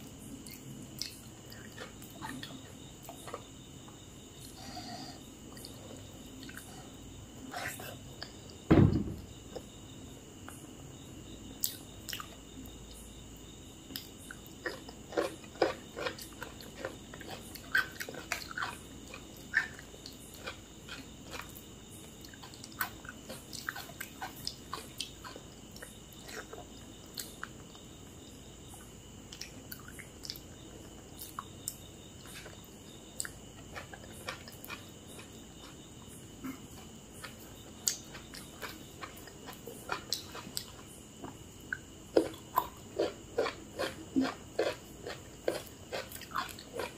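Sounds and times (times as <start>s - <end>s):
person chewing with wet clicks: 0.4s - 3.5s, 11.6s - 13.0s, 13.9s - 27.8s, 29.3s - 46.9s
heavy thump: 8.7s - 9.3s.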